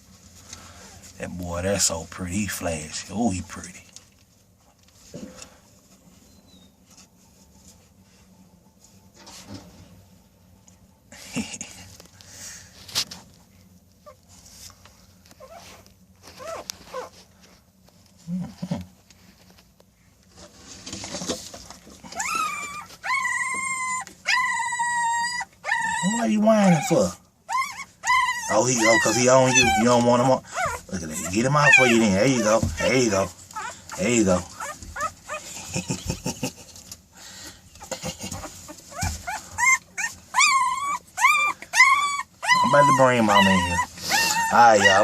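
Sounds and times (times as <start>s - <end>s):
soft rustling: 0.0s - 10.8s, 11.8s - 24.3s, 26.9s - 45.0s
puppy whining: 15.3s - 17.2s, 22.0s - 36.6s, 37.8s - 45.0s.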